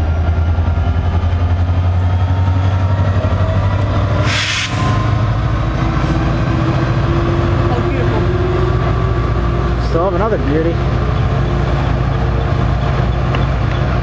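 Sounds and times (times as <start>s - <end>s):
locomotive engine drone: 0.0s - 14.0s
burst of hiss: 4.2s - 4.9s.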